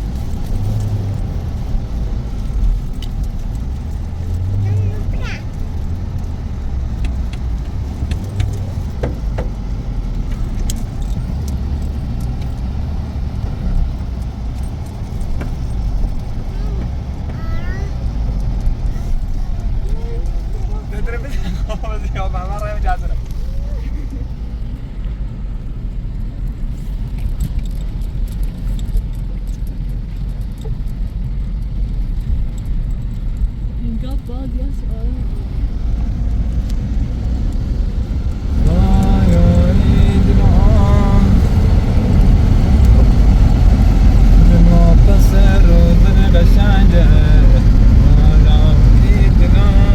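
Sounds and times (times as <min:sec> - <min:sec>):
wind buffeting microphone: 0:30.9 - 0:49.9.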